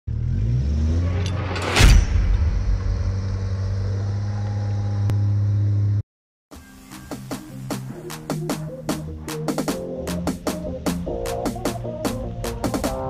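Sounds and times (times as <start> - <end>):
engine revving: 0.1 - 6.0.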